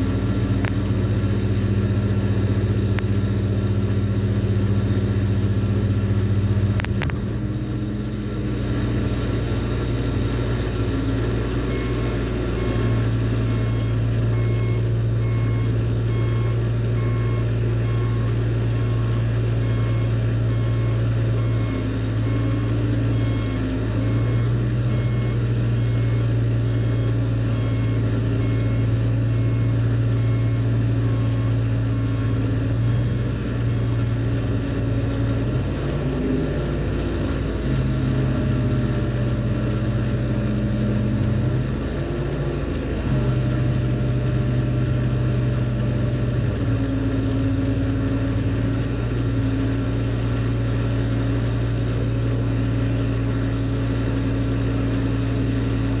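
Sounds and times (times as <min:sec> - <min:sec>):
crane engine humming: 0:00.0 - 0:56.0
repeating warning beep: 0:11.7 - 0:34.9.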